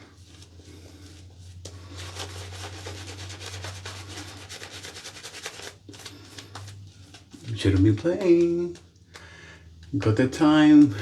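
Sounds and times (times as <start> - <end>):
shaving brush rubbing lather: 0.2 - 5.8.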